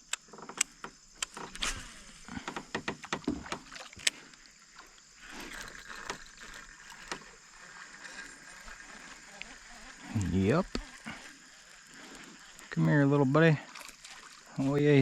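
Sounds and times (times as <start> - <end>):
clicks and knocks on a kayak: 0.0 - 7.4
soft wash of water: 3.4 - 15.0.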